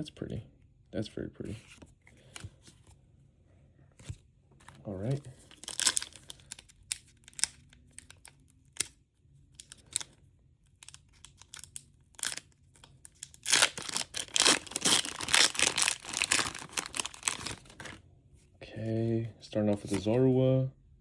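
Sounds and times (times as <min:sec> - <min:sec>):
foil wrapper crinkling and tearing: 0:05.5 - 0:08.9, 0:10.8 - 0:18.0.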